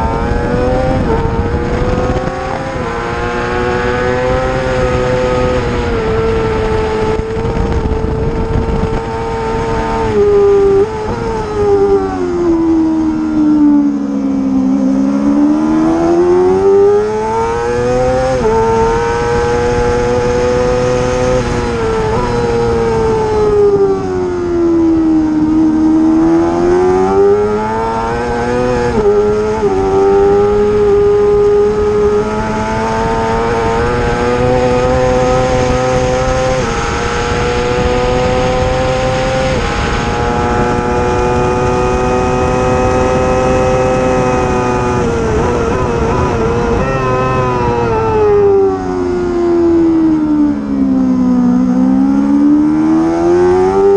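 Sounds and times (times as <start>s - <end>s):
gear changes: 0.0s - 53.9s
racing motorcycle engine revving: 0.0s - 53.9s.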